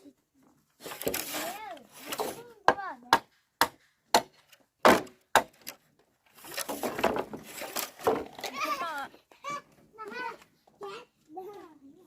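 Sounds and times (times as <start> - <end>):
tool striking wood: 2.1 - 5.7.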